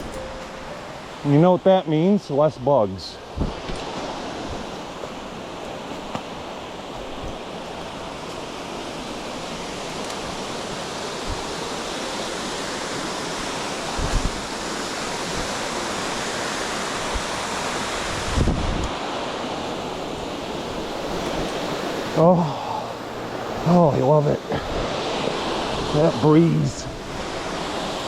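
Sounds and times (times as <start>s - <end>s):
waterfall rushing: 0.0s - 28.0s
wind gusts on microphone: 3.2s - 22.2s, 22.8s - 28.0s.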